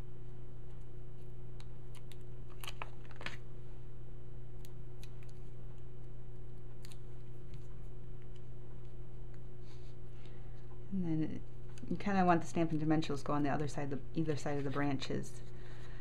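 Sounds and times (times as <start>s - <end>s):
steady electrical hum: 0.0s - 16.0s
paper clicks and rustles: 1.2s - 3.4s.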